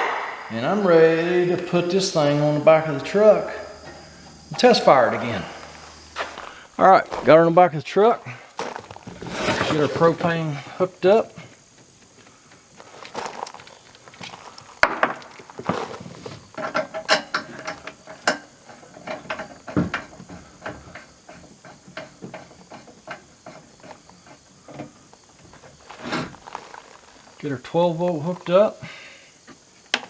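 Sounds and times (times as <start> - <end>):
metal clicks and clanks of gas bottle: 16.5 - 25.0.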